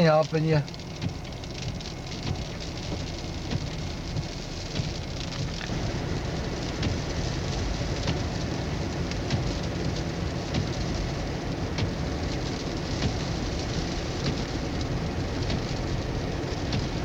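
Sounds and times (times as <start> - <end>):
small ticks and crackles: 0.0 - 17.0
blizzard wind and blowing snow: 5.6 - 17.0.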